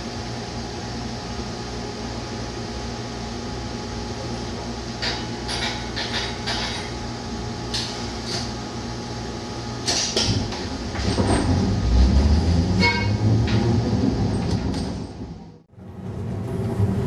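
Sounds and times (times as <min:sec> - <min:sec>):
streetcar rumbling as it moves: 0:00.0 - 0:17.0
streetcar humming: 0:07.1 - 0:17.0.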